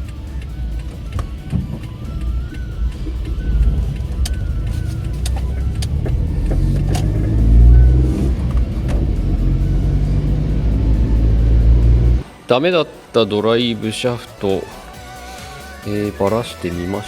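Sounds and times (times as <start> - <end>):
car engine hum: 0.0 - 12.4
road noise: 0.0 - 15.2.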